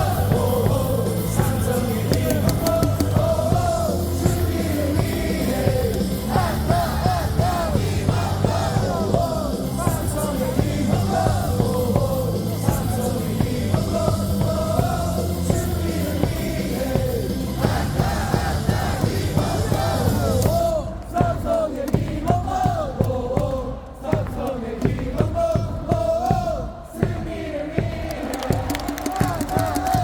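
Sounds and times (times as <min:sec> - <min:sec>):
amplified music with steady beat: 0:00.0 - 0:20.8
crowd singing and shouting: 0:00.0 - 0:30.0.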